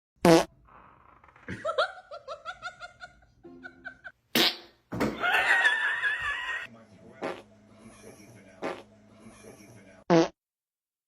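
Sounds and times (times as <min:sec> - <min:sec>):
rhythmic laughter: 0:01.5 - 0:04.2, 0:05.2 - 0:06.7.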